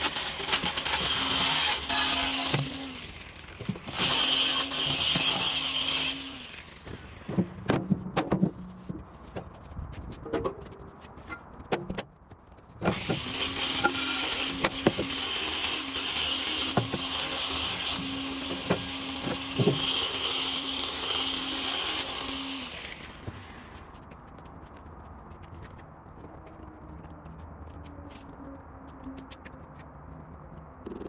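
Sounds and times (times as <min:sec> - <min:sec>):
power tool running: 0:00.0 - 0:07.6, 0:12.9 - 0:23.8.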